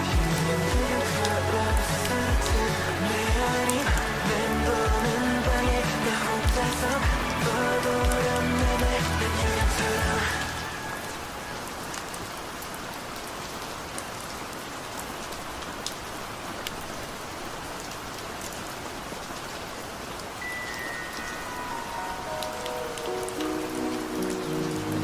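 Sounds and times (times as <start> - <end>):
steady rain: 0.0 - 25.0
high note: 20.4 - 25.0.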